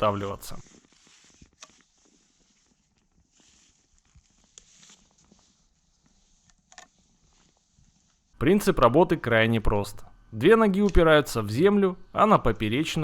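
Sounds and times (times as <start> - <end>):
soft clicks and rustles: 0.6 - 8.4.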